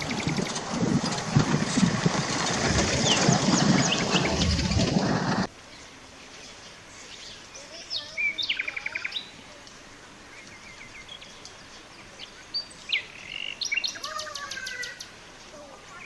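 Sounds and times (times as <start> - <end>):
birds chirping and trilling: 0.0 - 0.8, 2.2 - 9.4, 10.3 - 15.2
steady background hiss: 5.4 - 16.0.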